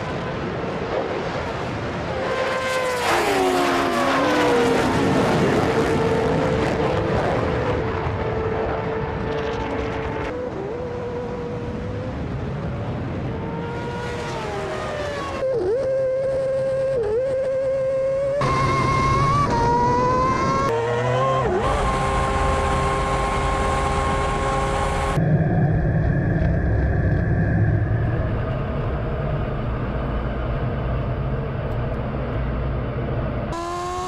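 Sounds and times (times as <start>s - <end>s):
racing engines passing: 0.0s - 25.2s.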